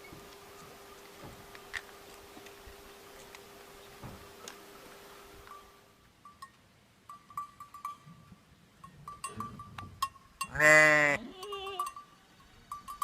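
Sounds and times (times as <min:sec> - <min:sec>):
livestock bells clinking: 0:05.5 - 0:13.0
sheep or goat bleating: 0:10.5 - 0:11.9.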